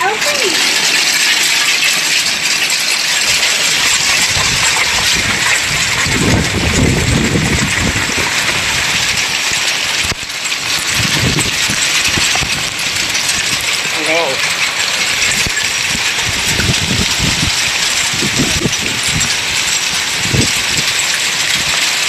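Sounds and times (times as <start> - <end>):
hail clattering: 0.0 - 22.0
low rumble: 3.4 - 9.2.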